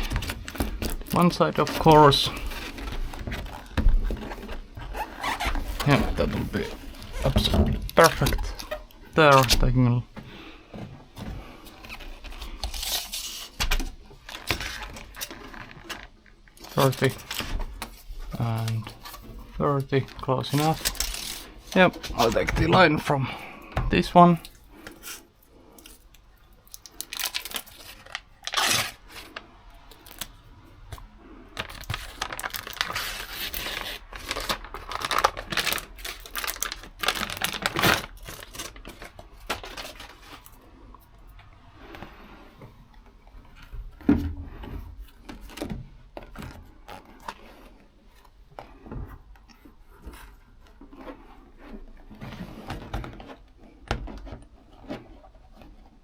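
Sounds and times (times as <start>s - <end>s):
sheet tearing and crinkling: 0.0s - 9.8s, 11.4s - 40.8s.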